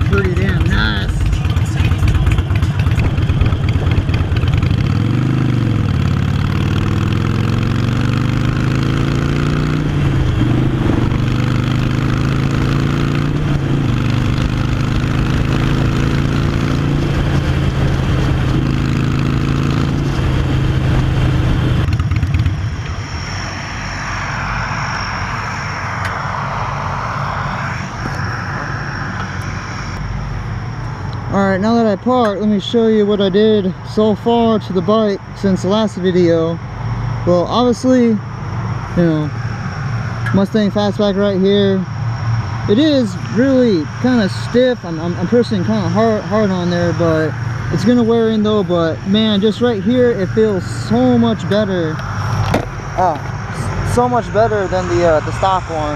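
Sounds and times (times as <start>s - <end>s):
motorcycle engine running loud: 0.0s - 36.5s, 37.2s - 55.9s
steady whooshing noise: 2.8s - 32.1s, 38.2s - 55.9s.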